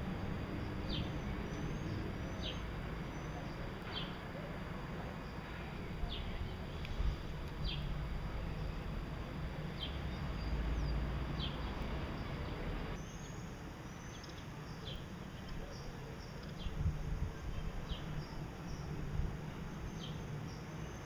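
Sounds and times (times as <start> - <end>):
low rumbling background: 0.0 - 13.0
cage birds chirping: 0.4 - 16.9, 17.5 - 21.0.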